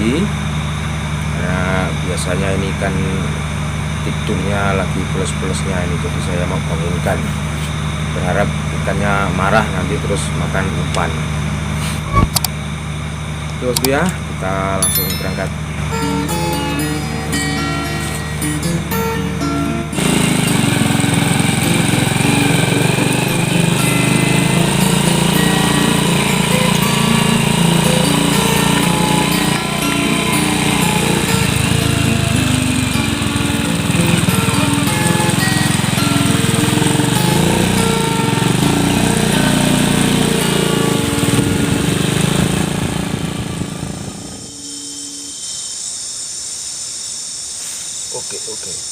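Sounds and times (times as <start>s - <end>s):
small engine running with rattle: 0.0s - 48.9s
insects chirping: 44.2s - 48.9s.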